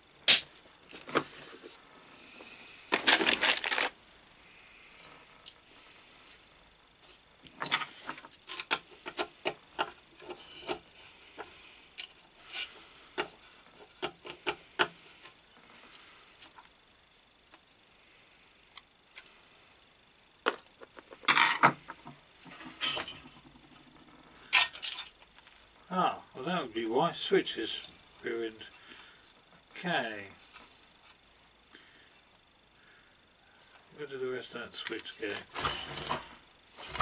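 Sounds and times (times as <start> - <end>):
hand tools clicking and tapping: 7.7 - 10.8, 13.2 - 15.4.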